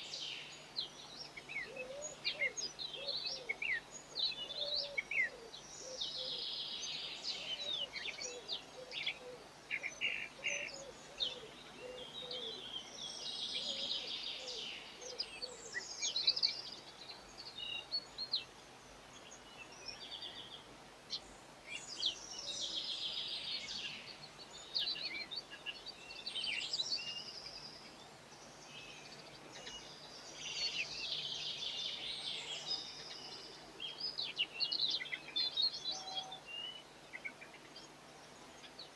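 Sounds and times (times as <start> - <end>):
songbirds twittering and chirping: 0.0 - 38.9.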